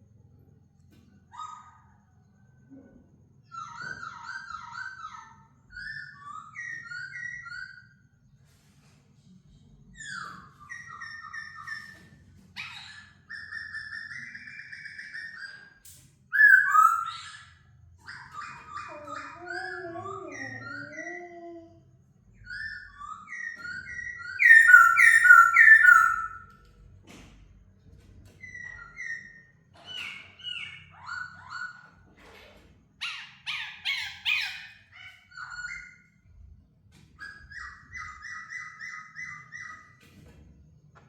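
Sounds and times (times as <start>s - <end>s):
bird singing whistled phrases: 16.3s - 17.2s, 22.8s - 26.5s.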